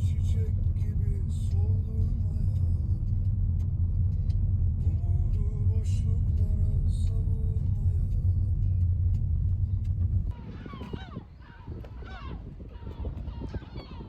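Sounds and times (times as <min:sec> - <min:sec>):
car rumble in motion: 0:00.0 - 0:14.0.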